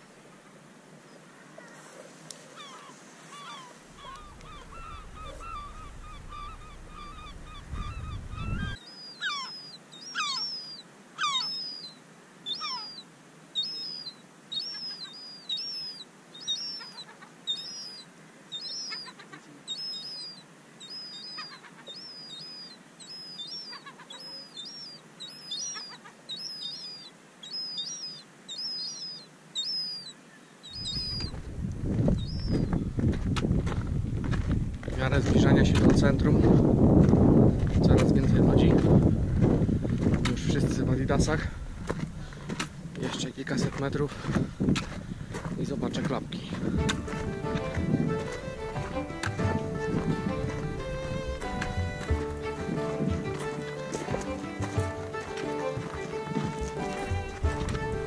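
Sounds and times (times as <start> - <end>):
short high bird call: 2.6 - 11.8
wavering bird call: 2.6 - 31.3, 32.2 - 32.8, 46.8 - 58.0
low rumble: 3.9 - 8.8.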